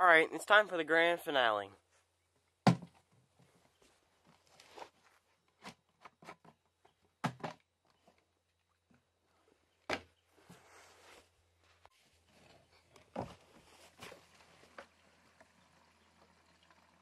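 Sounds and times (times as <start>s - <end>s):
faint rustle: 10.2s - 16.0s.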